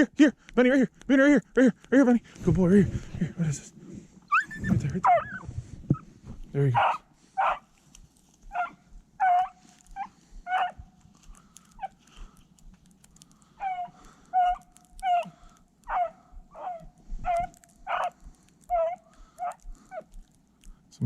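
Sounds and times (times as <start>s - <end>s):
dog baying: 4.3s - 5.5s, 6.8s - 7.7s, 8.4s - 11.0s, 13.4s - 20.3s.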